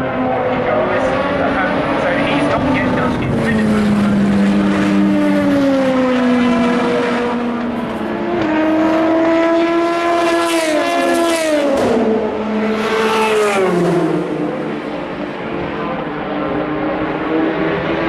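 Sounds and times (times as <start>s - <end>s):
race cars passing at speed: 0.0s - 18.0s.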